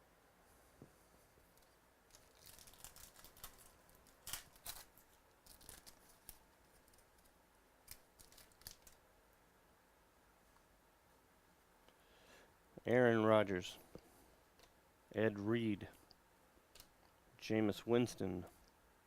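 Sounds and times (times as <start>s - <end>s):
cards rustling and crinkling: 1.5s - 9.0s
card pack being torn open: 2.1s - 7.0s, 7.8s - 9.0s.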